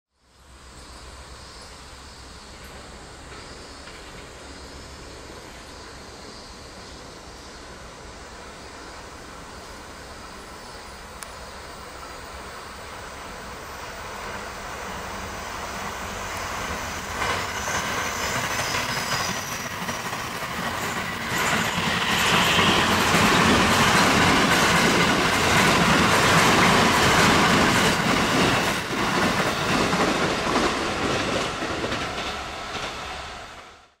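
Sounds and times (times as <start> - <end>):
trains passing: 0.2 - 34.0
wheels clacking over rail joints: 16.5 - 33.0.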